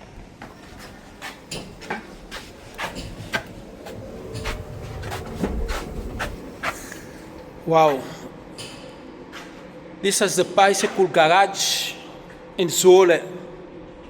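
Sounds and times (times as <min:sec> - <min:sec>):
footsteps on a hard floor: 0:00.4 - 0:07.5
low rumble: 0:01.7 - 0:08.6.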